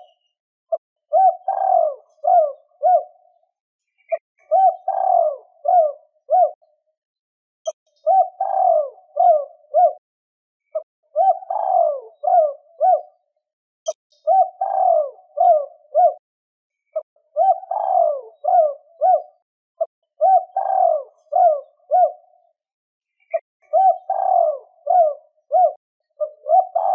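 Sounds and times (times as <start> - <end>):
dove cooing: 1.1 - 3.4, 4.1 - 6.7, 8.0 - 10.0, 10.8 - 13.3, 14.2 - 16.2, 17.3 - 22.4, 23.3 - 26.9.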